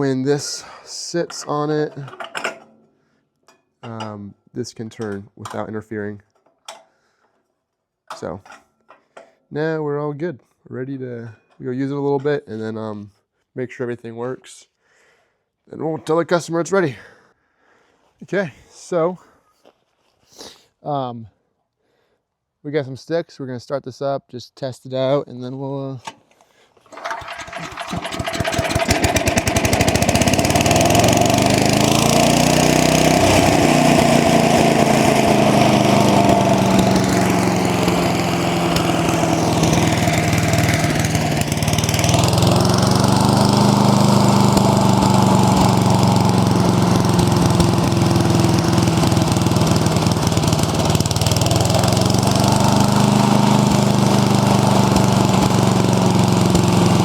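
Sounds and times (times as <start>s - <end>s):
small engine running: 26.9s - 57.0s.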